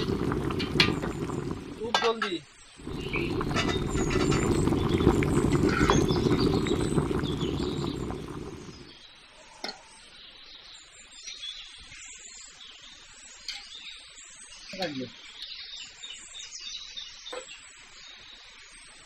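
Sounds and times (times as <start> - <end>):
rice boiling hard in pot: 0.0 - 9.0.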